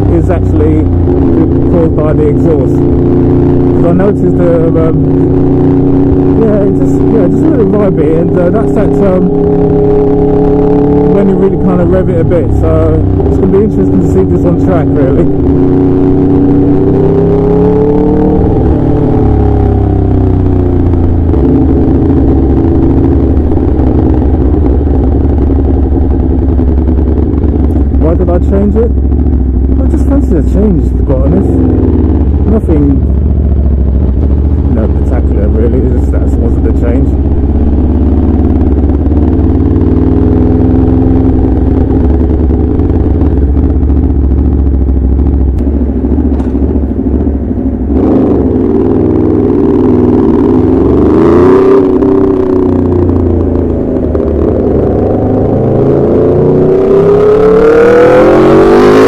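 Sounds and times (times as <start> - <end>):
loud motorcycle engine: 0.0 - 59.0.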